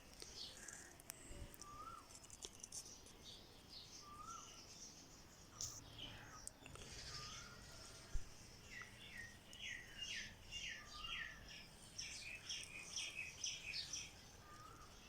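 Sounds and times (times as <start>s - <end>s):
songbird singing falling notes: 1.5s - 2.8s
faint lower bird whistle: 1.6s - 2.1s, 4.0s - 4.6s.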